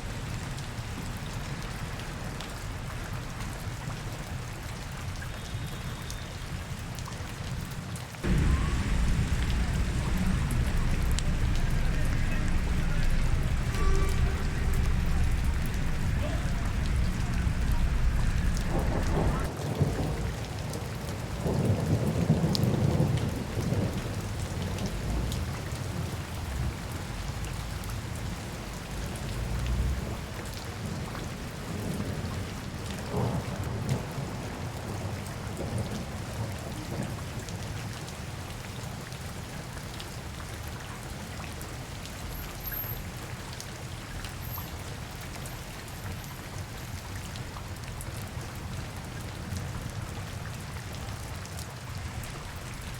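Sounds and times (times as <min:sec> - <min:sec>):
steady rain falling: 0:00.0 - 0:52.9
deep rumble: 0:08.2 - 0:19.5.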